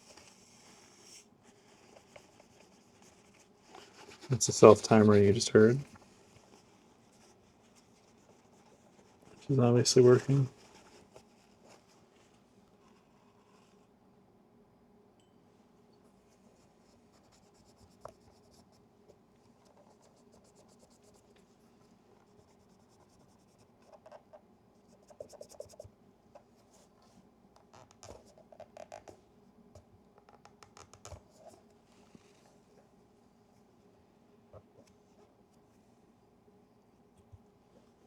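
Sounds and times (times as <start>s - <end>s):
scratching and rubbing on camera: 0.0s - 13.8s, 19.6s - 21.4s, 22.2s - 27.0s, 27.7s - 29.2s, 30.6s - 32.5s.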